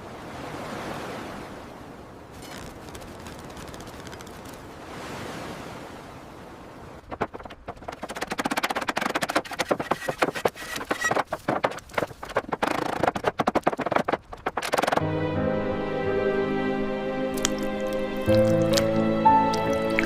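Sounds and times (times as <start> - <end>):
rapid knocking and clicking: 7.0 - 15.0
music with held notes: 15.0 - 20.0.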